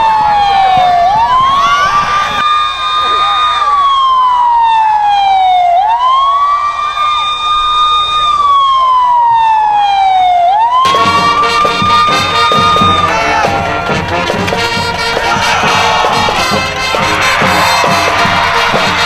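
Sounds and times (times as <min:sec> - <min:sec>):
siren wail: 0:00.0 - 0:19.0
music with steady beat: 0:10.9 - 0:19.0.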